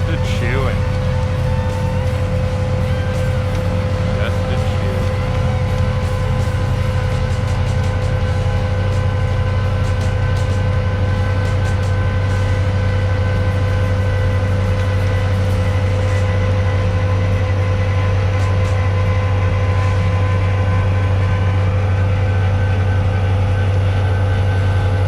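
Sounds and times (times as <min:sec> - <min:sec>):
tractor engine under load: 0:00.0 - 0:10.7
snowblower auger chewing snow: 0:00.0 - 0:17.5.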